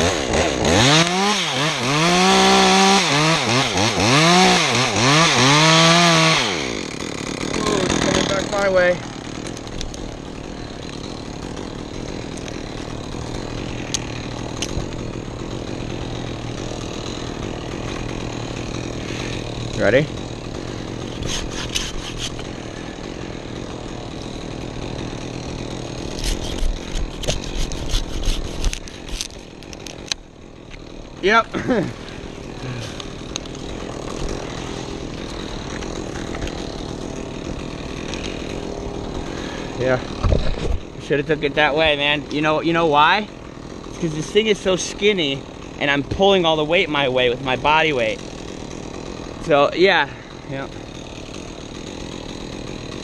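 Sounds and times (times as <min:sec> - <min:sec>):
chainsaw cutting wood: 0:00.0 - 0:53.0
wood cracking and knocking: 0:35.1 - 0:38.4, 0:40.1 - 0:41.0.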